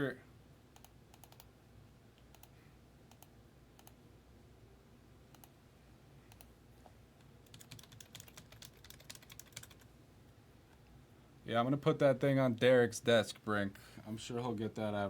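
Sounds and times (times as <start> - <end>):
faint keyboard typing: 0.7 - 1.5, 2.2 - 4.0, 5.3 - 5.6, 6.3 - 6.6, 7.2 - 9.9.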